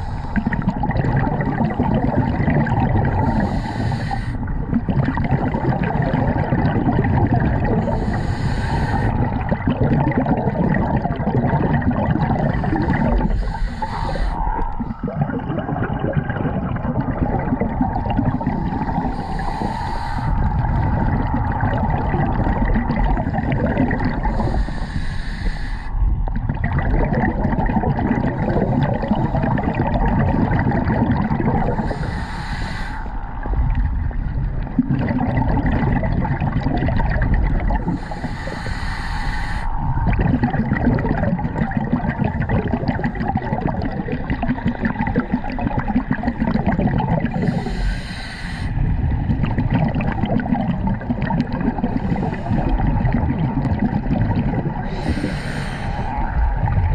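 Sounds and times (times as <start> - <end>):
breath and bubbles rushing: 0.0 - 56.9
scuba regulator underwater rumble: 0.0 - 56.9.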